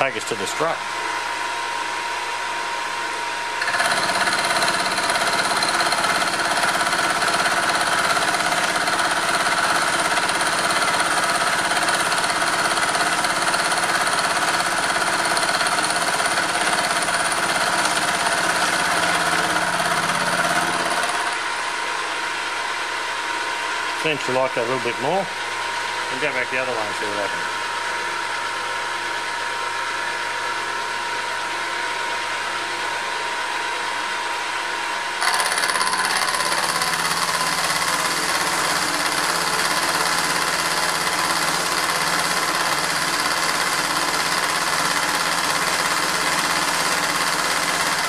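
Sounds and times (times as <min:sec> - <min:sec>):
cutter cutting metal: 0:03.6 - 0:21.6, 0:35.2 - 0:48.0
milling machine running: 0:03.6 - 0:22.5, 0:35.2 - 0:48.0.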